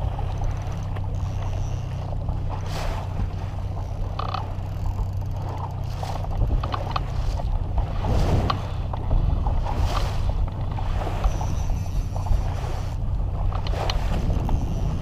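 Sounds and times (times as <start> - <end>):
boat motor droning: 0.0 - 15.0
wind: 0.0 - 15.0
water splash: 7.0 - 13.0.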